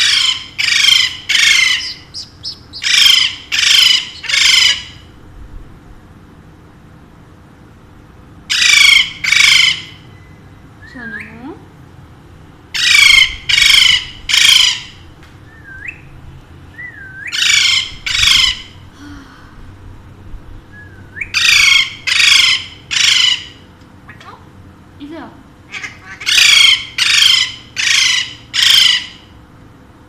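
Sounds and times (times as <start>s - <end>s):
parakeet squawking: 0.0s - 5.1s, 8.5s - 10.1s, 12.8s - 15.0s, 17.2s - 18.8s, 21.2s - 24.3s, 25.7s - 29.3s.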